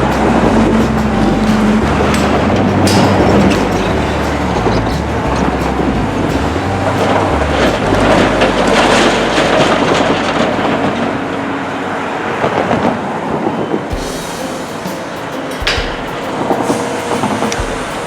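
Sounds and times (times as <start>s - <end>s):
metallic clanking and rattling: 0.0s - 11.1s
diesel engine drone: 0.0s - 15.5s.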